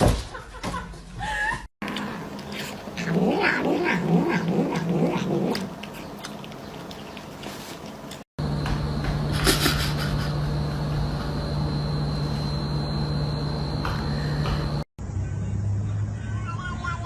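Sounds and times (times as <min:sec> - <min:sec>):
cat yowling: 0:03.0 - 0:05.6.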